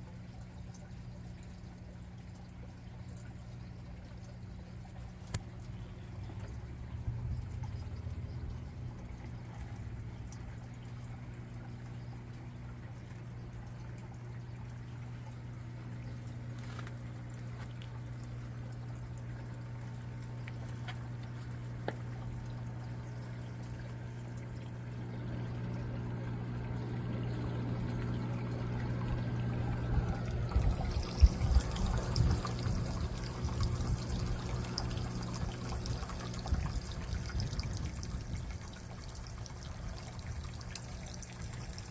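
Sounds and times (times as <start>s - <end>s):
steady low hum: 0.0s - 41.9s
water pouring and trickling: 0.0s - 41.9s.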